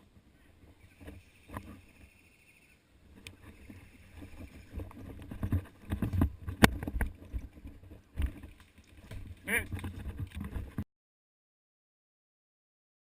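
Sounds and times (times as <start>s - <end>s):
knocks and rustling: 4.2s - 10.8s.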